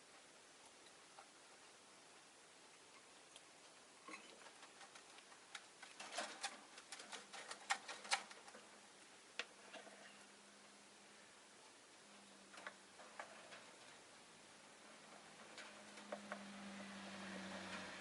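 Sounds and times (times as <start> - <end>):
faint low hum: 0.0 - 18.0
birds clicking and tapping: 4.2 - 8.7, 15.0 - 18.0.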